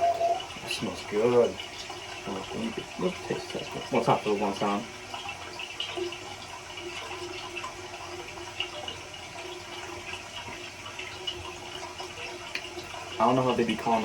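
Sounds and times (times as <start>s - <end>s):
running water rushing: 0.0s - 14.0s.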